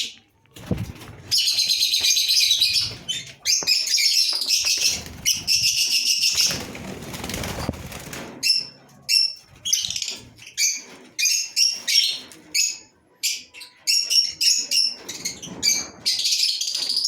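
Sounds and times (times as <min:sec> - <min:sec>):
lovebirds chirping shrilly: 0:01.2 - 0:07.6.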